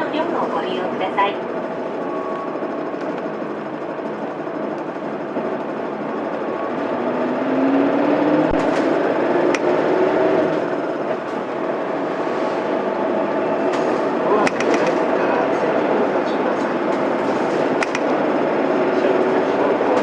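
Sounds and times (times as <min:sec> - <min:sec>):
bus diesel engine running: 0:00.0 - 0:20.0
road noise: 0:00.0 - 0:20.0
sharp clicks: 0:14.4 - 0:15.0, 0:17.8 - 0:18.1.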